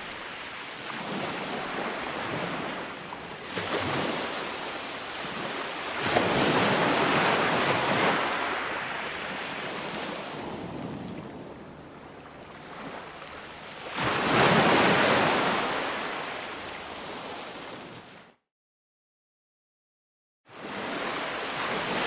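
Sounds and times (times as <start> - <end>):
ocean surf washing: 0.0 - 18.2
wave breaking: 3.4 - 15.8.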